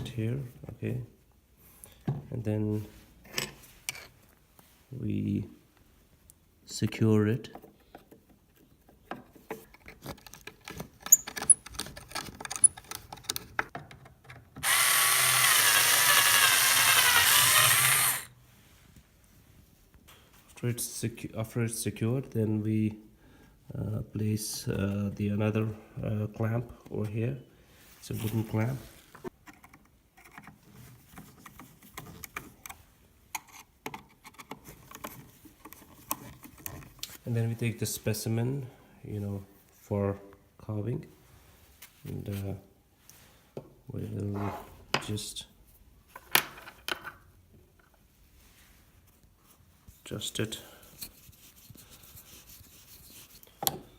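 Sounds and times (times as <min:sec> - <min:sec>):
clicks and knocks of handling: 0:07.5 - 0:14.6, 0:29.2 - 0:37.2
electric drill motor running: 0:14.6 - 0:18.3.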